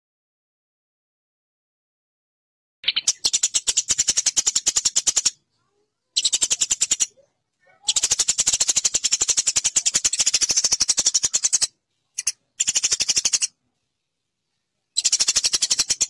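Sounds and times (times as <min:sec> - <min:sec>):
sparrow chattering: 0:02.8 - 0:13.6, 0:14.9 - 0:16.0.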